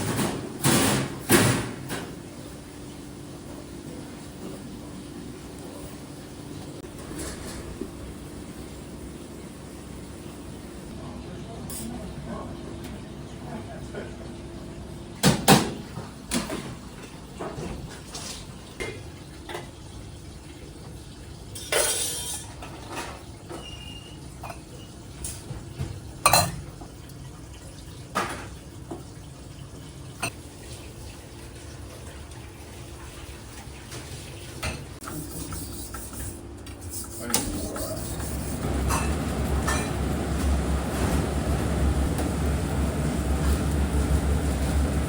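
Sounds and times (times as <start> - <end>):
dishes and utensils clattering: 21.5 - 26.7, 37.3 - 40.0.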